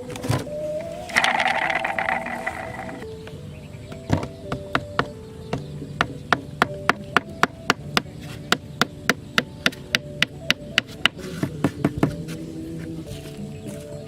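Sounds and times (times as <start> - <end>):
steady held tone: 0.5 - 3.0.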